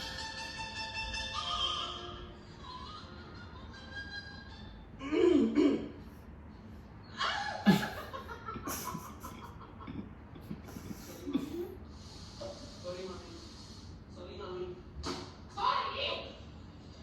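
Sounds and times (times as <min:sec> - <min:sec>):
people laughing: 0:07.2 - 0:11.8.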